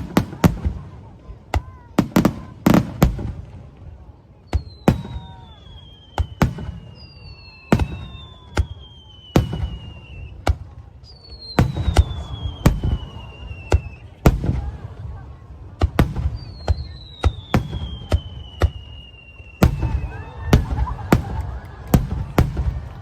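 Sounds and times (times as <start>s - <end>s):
fireworks bangs: 0.0s - 23.0s
fireworks whistles sliding down: 4.6s - 14.1s, 16.3s - 21.1s.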